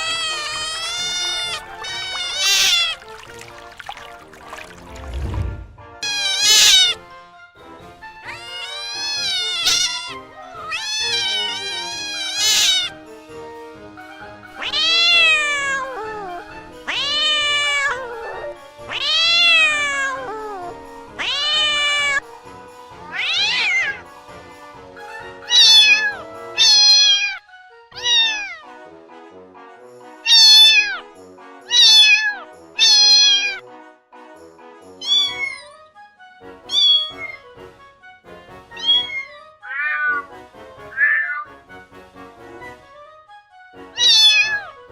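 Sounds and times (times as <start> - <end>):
cat meowing: 0.0 - 4.9, 6.0 - 7.0, 8.2 - 13.0, 14.5 - 22.2, 23.1 - 24.0, 25.4 - 28.7, 30.3 - 31.0, 31.7 - 33.6, 35.0 - 35.8, 36.7 - 37.5, 38.8 - 40.3, 40.9 - 41.6, 44.0 - 44.8
background music: 0.0 - 44.9.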